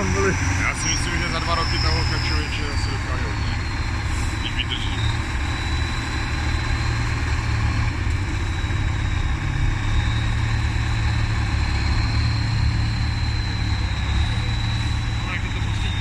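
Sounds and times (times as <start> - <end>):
thin high whine: 0.0 - 6.9
truck engine running at low revs: 0.0 - 16.0.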